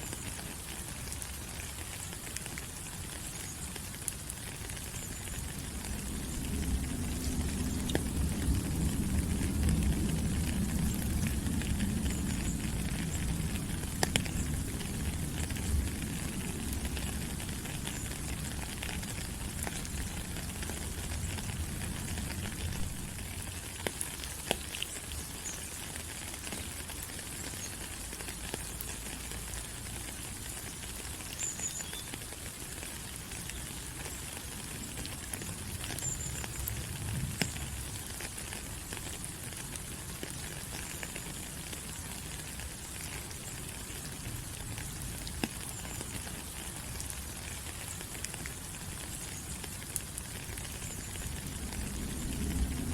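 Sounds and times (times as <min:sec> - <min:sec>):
rain on foliage: 0:00.0 - 0:52.9
water drips ticking: 0:00.0 - 0:52.9
low rumble: 0:05.6 - 0:17.2.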